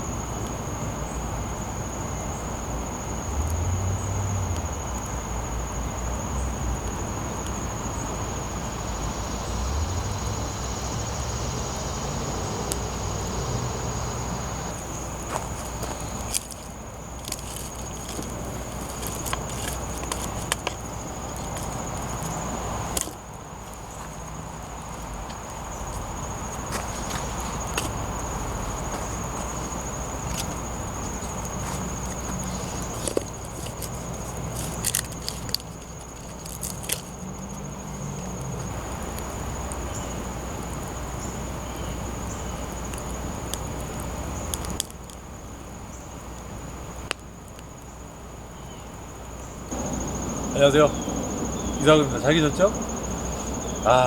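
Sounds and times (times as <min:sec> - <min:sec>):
high insect drone: 0:00.0 - 0:54.0
campfire crackling and snapping: 0:12.6 - 0:13.2, 0:13.8 - 0:47.9.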